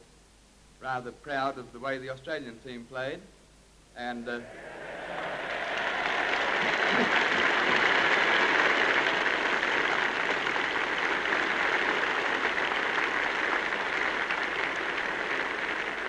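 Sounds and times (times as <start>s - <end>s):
large crowd applauding: 4.3s - 16.0s.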